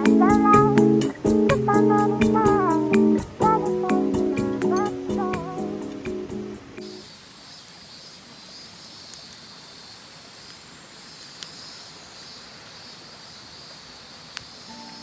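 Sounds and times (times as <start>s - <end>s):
acoustic guitar music: 0.0s - 7.0s, 14.7s - 15.0s
background hiss: 0.0s - 15.0s
insect chorus: 0.0s - 15.0s.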